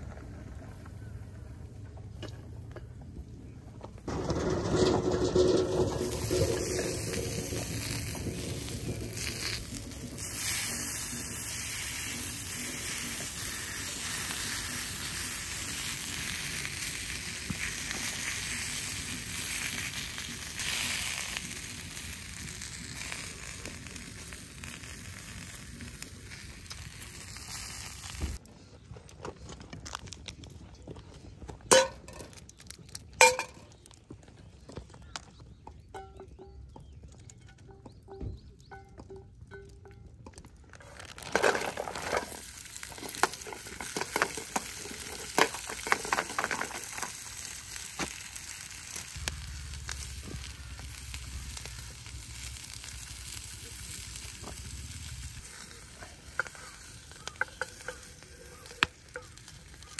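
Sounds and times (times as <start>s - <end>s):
food sizzling in a skillet: 6.2s - 28.4s, 42.0s - 59.9s.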